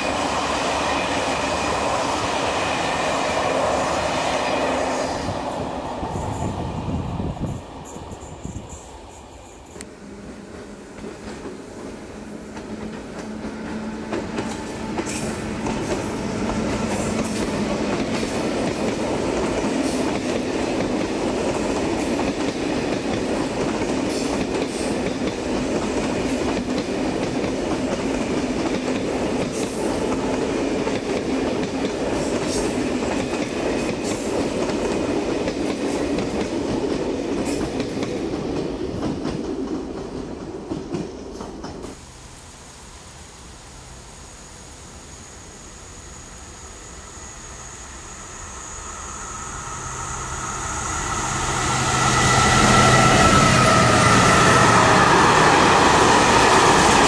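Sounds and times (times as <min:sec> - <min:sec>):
train wheels clicking over rail joints: 0:09.7 - 0:42.0.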